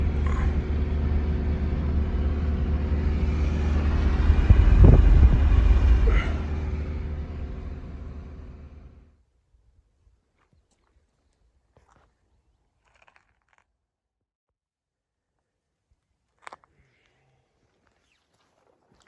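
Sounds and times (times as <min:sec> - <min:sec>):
loud low rumbling: 0:00.0 - 0:09.1.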